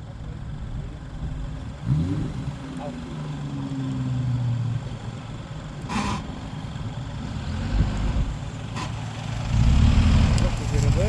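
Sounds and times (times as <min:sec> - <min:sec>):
car engine revving: 0:01.6 - 0:05.0, 0:05.8 - 0:11.0.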